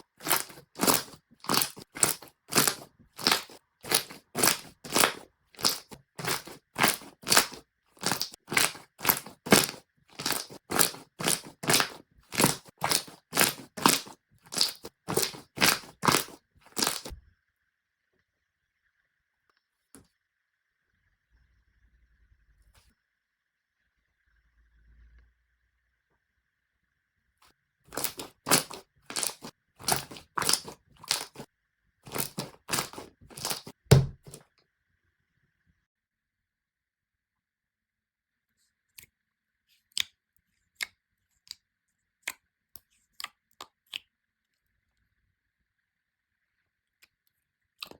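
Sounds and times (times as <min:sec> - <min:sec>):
slime squeezed by hand: 0:00.0 - 0:17.2, 0:27.9 - 0:31.5, 0:32.1 - 0:34.4.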